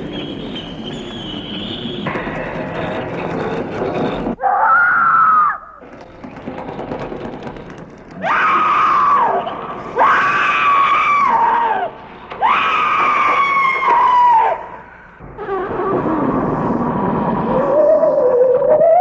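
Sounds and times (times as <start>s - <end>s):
high-pitched screams: 4.4s - 5.8s, 8.2s - 19.0s.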